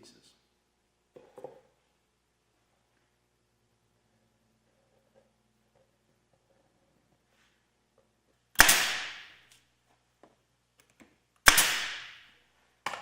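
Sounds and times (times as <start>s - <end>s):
pneumatic stapler firing: 8.6s - 9.4s, 11.4s - 12.2s.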